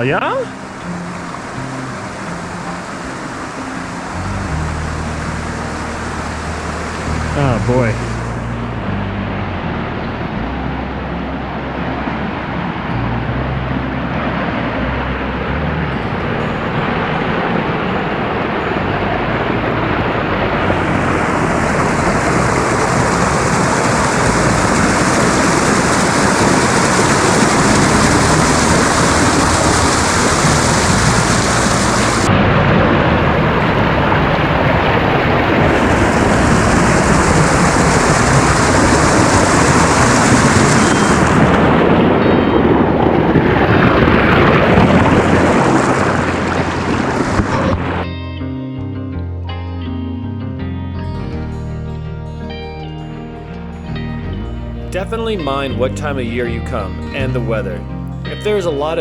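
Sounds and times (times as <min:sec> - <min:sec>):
waterfall rushing: 0:00.0 - 0:08.6, 0:15.5 - 0:42.2, 0:43.3 - 0:48.0.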